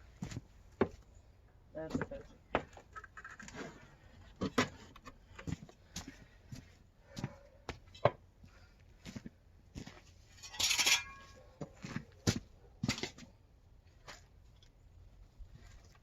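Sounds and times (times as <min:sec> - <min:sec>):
shovel scraping: 0:10.4 - 0:11.4.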